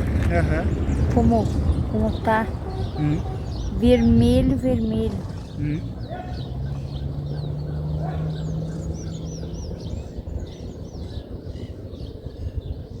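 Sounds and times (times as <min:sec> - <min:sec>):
steady low hum: 0:00.0 - 0:07.8
small birds chirping: 0:00.0 - 0:13.0.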